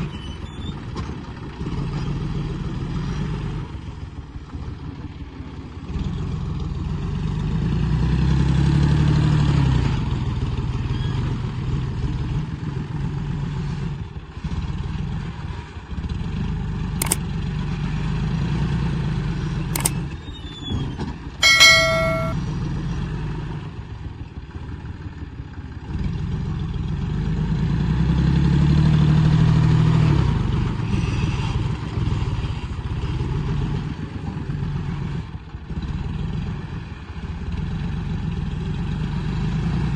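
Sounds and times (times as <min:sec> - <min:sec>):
sharp clicks: 0:21.4 - 0:22.4.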